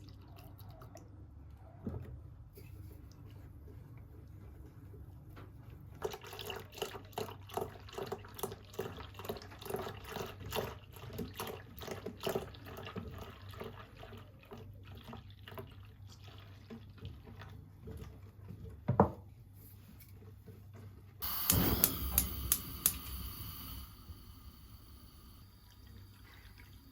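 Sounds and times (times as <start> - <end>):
sharp knock: 21.2 - 23.8.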